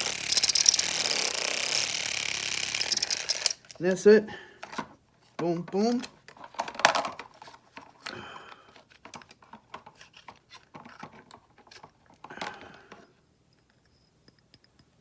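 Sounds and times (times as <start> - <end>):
herb grinder clicks and scrapes: 0.0 - 3.8.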